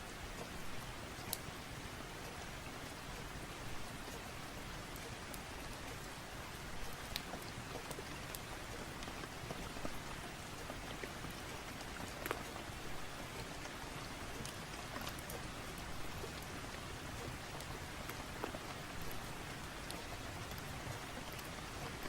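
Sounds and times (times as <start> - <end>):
steady rain: 0.0 - 22.0
wood fire crackling and popping: 4.9 - 22.0.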